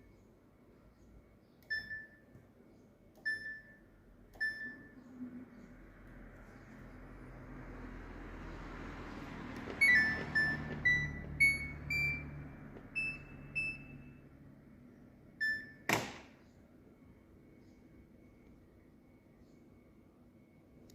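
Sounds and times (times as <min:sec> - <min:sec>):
washing machine beep melody: 0:01.6 - 0:02.3, 0:03.2 - 0:05.0, 0:09.6 - 0:14.5, 0:15.3 - 0:15.9
washing machine humming: 0:01.7 - 0:20.9.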